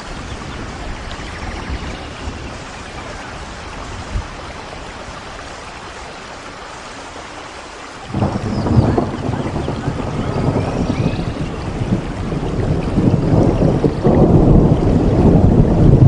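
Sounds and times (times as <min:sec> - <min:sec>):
steady rain: 0:00.0 - 0:16.0
thunder rumbling: 0:08.1 - 0:16.0.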